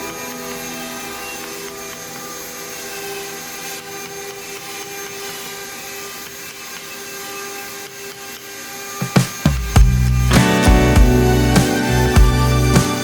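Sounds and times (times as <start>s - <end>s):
small power tool running: 0.0s - 13.0s.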